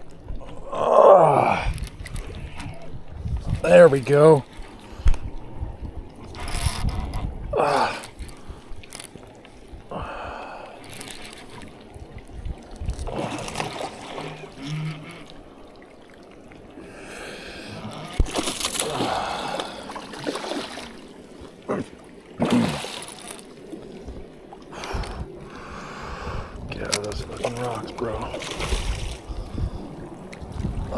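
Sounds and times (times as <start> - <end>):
fish splashing in water: 17.4 - 21.3, 22.3 - 25.5.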